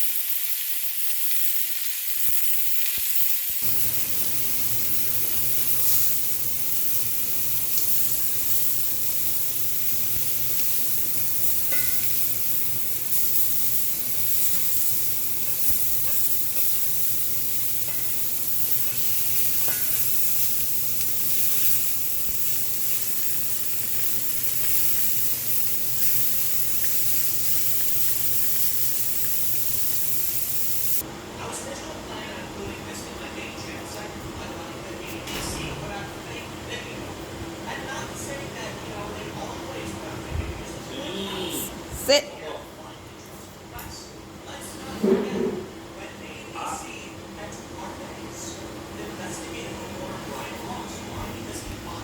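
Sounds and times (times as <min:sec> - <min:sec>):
meat sizzling on a grill: 0:00.0 - 0:31.1.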